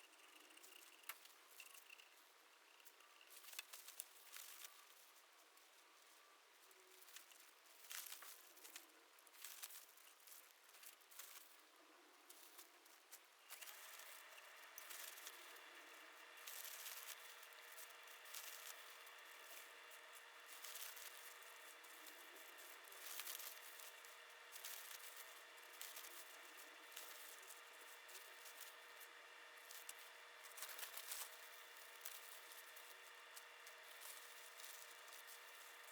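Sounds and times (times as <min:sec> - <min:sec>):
faint steady hum: 0:00.0 - 0:35.9
rustling and crinkling: 0:00.3 - 0:35.9.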